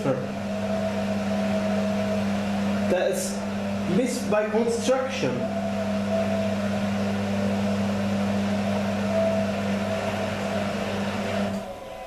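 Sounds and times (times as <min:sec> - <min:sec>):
faint high motor drone: 0:00.0 - 0:12.0
washing machine humming: 0:00.0 - 0:12.0.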